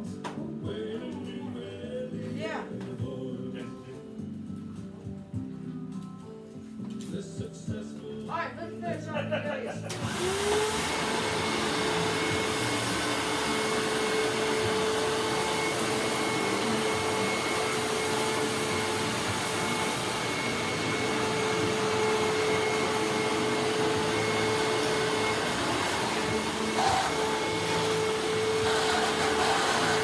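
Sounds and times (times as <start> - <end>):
vacuum cleaner running: 9.9 - 30.0.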